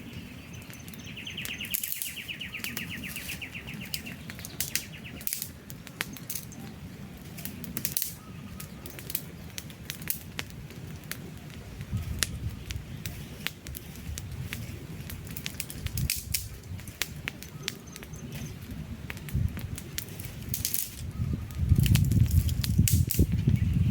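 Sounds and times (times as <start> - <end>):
bird trill: 0.0 - 5.4
campfire snapping and popping: 0.0 - 23.9
low rush of flames: 0.0 - 23.9.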